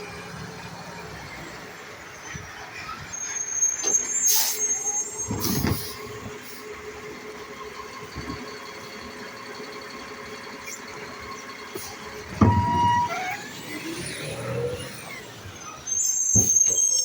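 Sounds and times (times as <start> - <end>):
garbage truck running: 0.0 - 17.0
high squeal: 2.1 - 6.2, 11.8 - 17.0
air brake hisses: 3.4 - 6.7.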